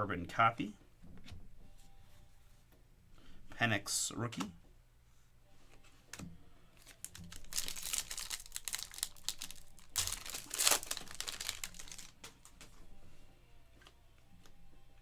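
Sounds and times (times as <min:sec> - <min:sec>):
foil wrapper crinkling and tearing: 0:06.8 - 0:12.5
cards clicking: 0:06.8 - 0:12.8.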